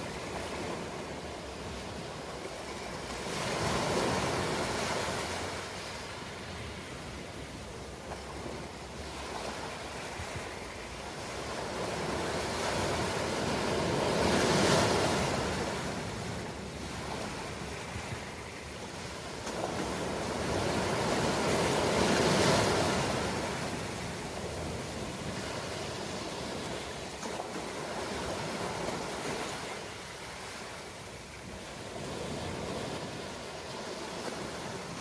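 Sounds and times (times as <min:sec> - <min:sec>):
steady surf wash: 0:00.0 - 0:35.0
waves breaking: 0:00.0 - 0:35.0.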